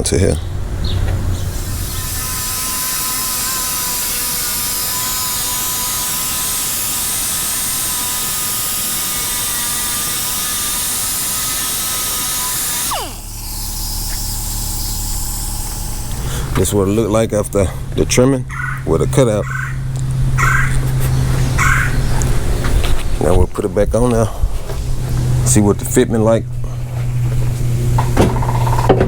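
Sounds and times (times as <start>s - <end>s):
grinder spinning down: 1.2s - 17.2s
angle grinder sanding: 1.4s - 23.3s
low hum: 12.4s - 29.0s.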